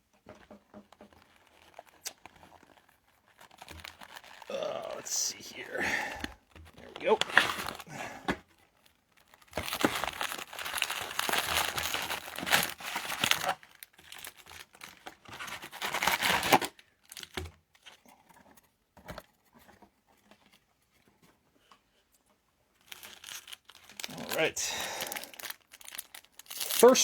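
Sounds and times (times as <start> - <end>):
packaging tearing and crinkling: 0.9 - 18.0, 22.8 - 27.0.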